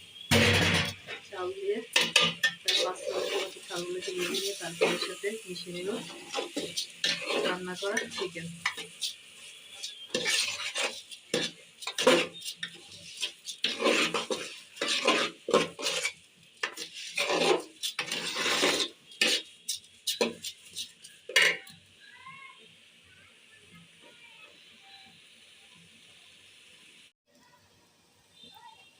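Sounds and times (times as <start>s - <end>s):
light sizzle: 0.0s - 28.9s
spoon stirring rice in a pot: 1.8s - 21.8s.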